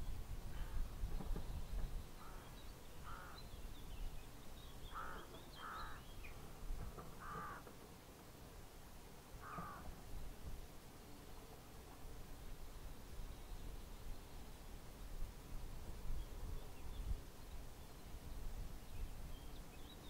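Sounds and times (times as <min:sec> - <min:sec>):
bird giving harsh caw calls: 0:02.2 - 0:03.4, 0:04.9 - 0:06.0, 0:07.2 - 0:07.6, 0:09.4 - 0:09.9.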